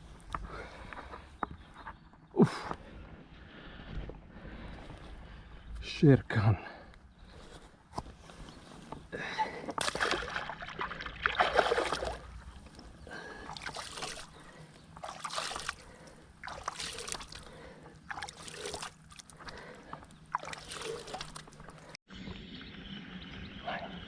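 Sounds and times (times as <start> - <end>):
water splashing and sloshing: 9.7 - 22.0.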